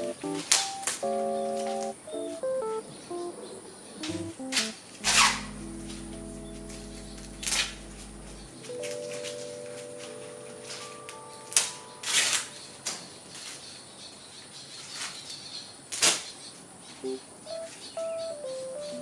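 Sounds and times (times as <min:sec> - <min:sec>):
soft background music: 0:00.0 - 0:03.4, 0:04.0 - 0:12.9, 0:17.1 - 0:19.0.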